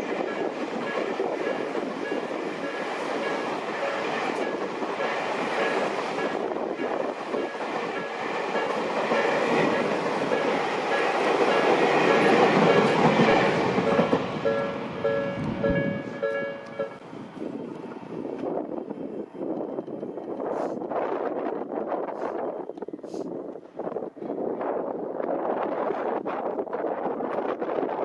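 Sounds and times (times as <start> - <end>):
level crossing warning bell: 0.0 - 17.0
train wheels clattering on rails: 0.0 - 17.0.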